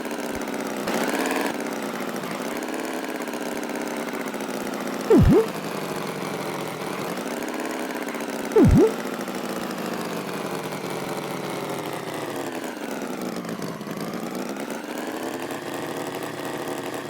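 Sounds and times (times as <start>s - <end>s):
swooping tone: 5.1s - 5.5s, 8.6s - 9.0s.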